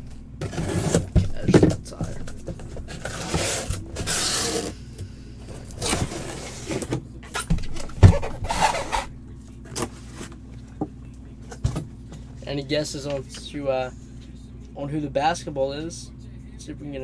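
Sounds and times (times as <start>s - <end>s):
packaging rustling and scraping: 0.0s - 9.1s, 9.7s - 10.4s.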